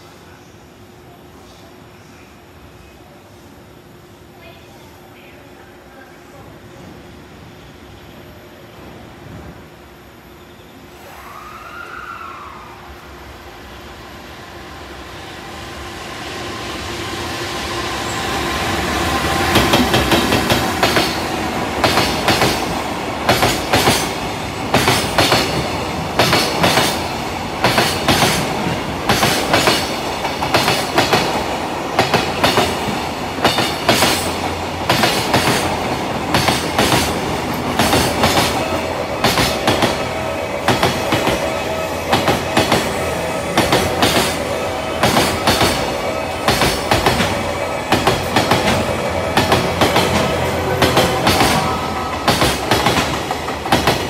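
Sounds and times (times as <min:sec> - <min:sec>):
freight train passing: 0:00.0 - 0:54.0
wheels clacking over rail joints: 0:32.0 - 0:54.0.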